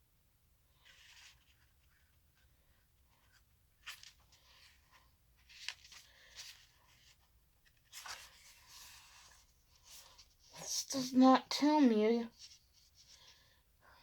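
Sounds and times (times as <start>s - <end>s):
paper rustling and crinkling: 0.8s - 2.5s, 3.1s - 11.1s.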